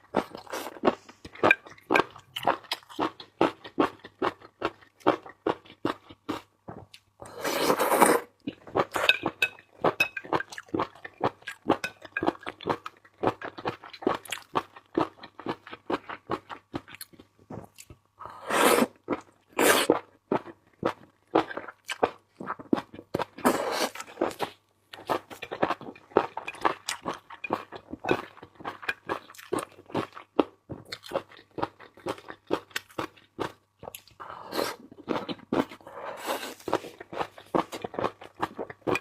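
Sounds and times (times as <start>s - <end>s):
crunching and chewing: 19.0s - 39.0s.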